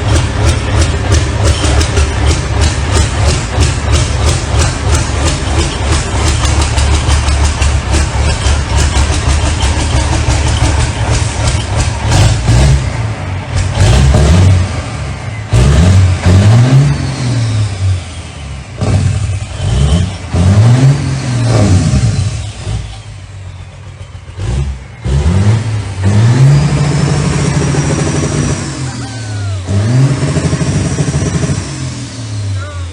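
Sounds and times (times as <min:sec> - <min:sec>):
diesel engine clattering and revving: 0:00.0 - 0:32.9.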